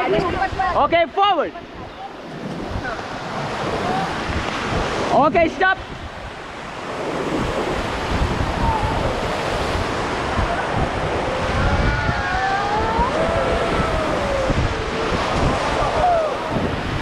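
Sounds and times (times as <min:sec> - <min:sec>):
rushing river water: 0:00.0 - 0:17.0
wind buffeting microphone: 0:01.6 - 0:17.0
distant voices calling out: 0:08.5 - 0:16.9.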